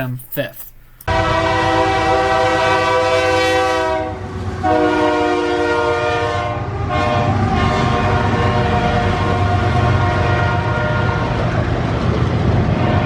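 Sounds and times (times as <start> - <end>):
diesel locomotive rumble: 1.0 - 13.0
locomotive air horn blasts: 1.1 - 11.5.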